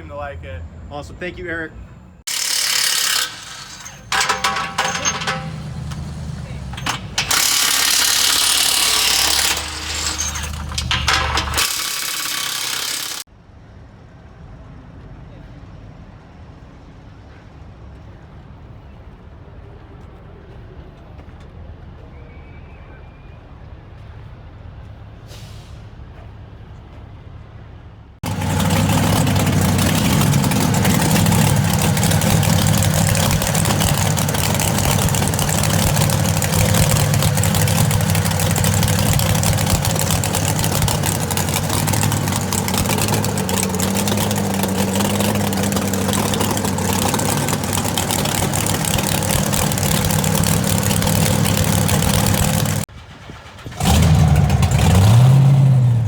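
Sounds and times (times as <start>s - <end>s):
engine hiss: 2.3s - 13.3s, 28.2s - 53.0s
truck engine idling: 2.3s - 13.3s, 28.2s - 56.0s.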